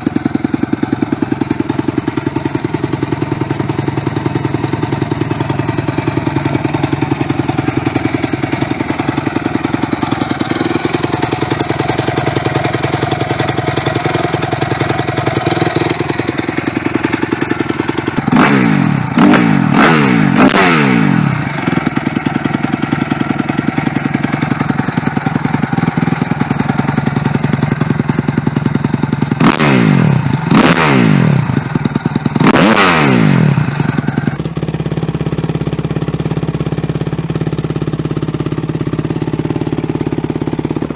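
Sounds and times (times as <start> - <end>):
dirt bike engine idling: 0.0 - 40.9
dirt bike engine revving: 3.1 - 34.4.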